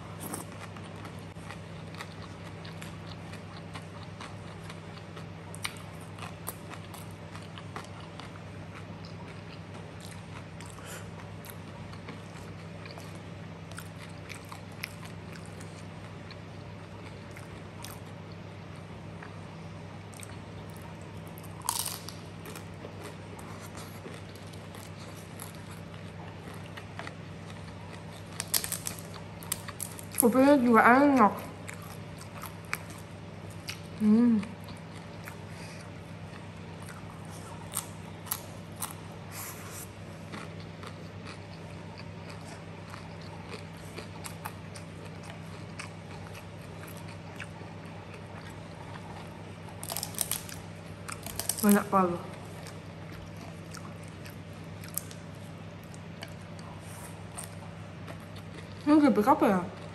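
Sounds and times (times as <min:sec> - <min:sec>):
chewing and crunching food: 0:00.0 - 0:59.9
steady low hum: 0:00.0 - 0:59.9.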